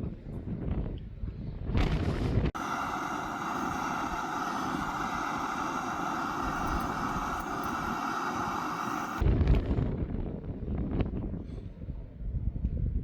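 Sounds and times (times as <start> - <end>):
gusty wind noise: 0.0 - 13.0
steady motor whine: 2.6 - 9.2.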